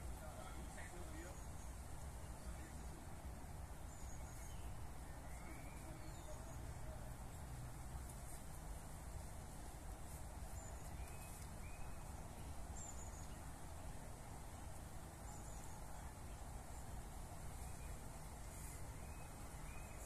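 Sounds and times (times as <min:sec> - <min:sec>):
faint bird chirps: 0:03.8 - 0:07.1, 0:10.5 - 0:13.6, 0:15.2 - 0:20.0.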